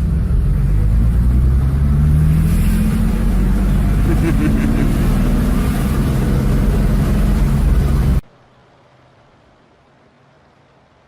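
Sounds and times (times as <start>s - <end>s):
vehicle engine droning: 0.0s - 8.2s
road noise: 0.0s - 11.0s.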